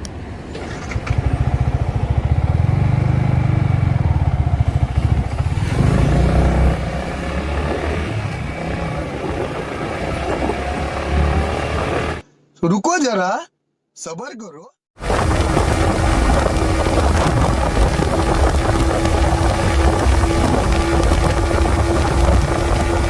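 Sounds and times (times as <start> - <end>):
motorcycle engine under throttle: 0.6 - 12.2, 15.0 - 23.0
rushing noise: 15.0 - 23.0.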